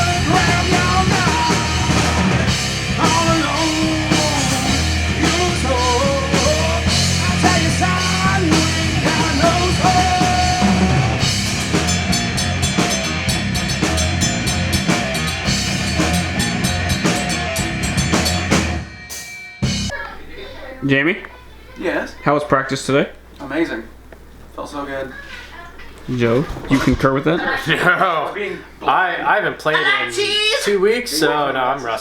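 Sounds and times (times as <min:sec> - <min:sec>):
person singing: 0:00.0 - 0:11.3
punk rock music: 0:00.0 - 0:20.0
drums and cymbals: 0:00.0 - 0:20.5.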